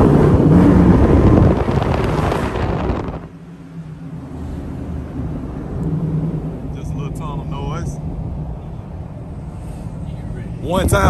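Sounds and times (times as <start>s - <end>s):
car engine revving hard: 0.0s - 3.3s
heavy wind noise: 0.0s - 11.0s.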